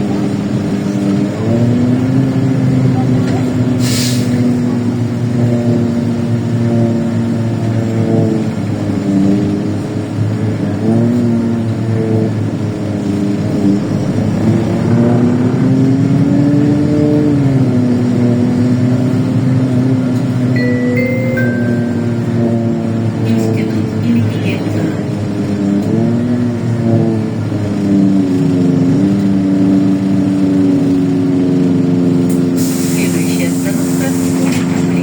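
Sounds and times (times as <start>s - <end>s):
bus engine running: 0.0s - 35.0s
short electronic chime: 20.6s - 22.7s.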